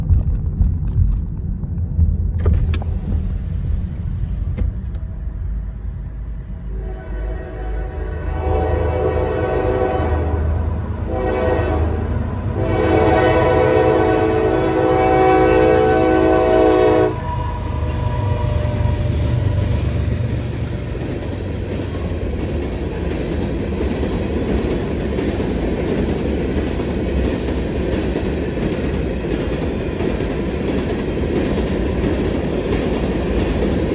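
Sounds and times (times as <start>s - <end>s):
low rumble of passing train: 0.0s - 33.9s
locomotive air horn blasts: 6.7s - 20.1s.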